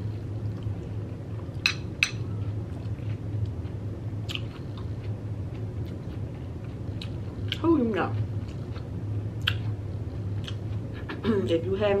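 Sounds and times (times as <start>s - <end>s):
low hum: 0.0s - 12.0s
crunchy chewing: 2.2s - 10.9s.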